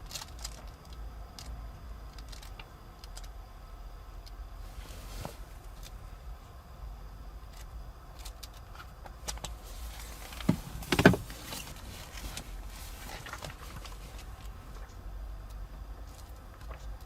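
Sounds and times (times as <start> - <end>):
steady low hum: 0.0 - 17.0
short heavy thump: 10.4 - 11.5.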